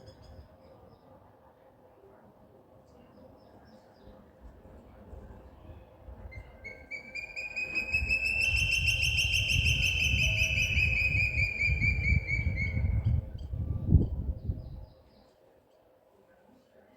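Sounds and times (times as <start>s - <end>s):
bird trilling: 6.6s - 13.4s.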